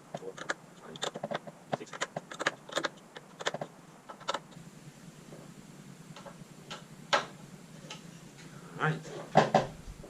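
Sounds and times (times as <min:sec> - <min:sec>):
hand tools clicking and tapping: 0:00.0 - 0:04.6.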